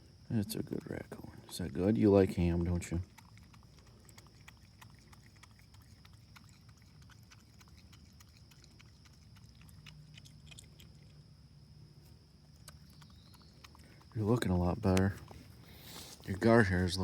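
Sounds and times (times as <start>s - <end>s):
raccoon chewing clicks: 0.4s - 11.3s, 12.4s - 16.6s.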